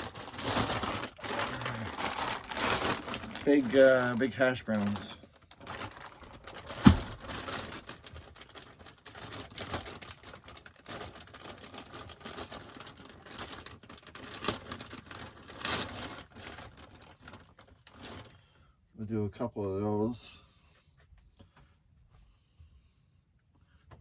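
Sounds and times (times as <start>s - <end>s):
plastic packaging crinkling: 0.0s - 18.3s.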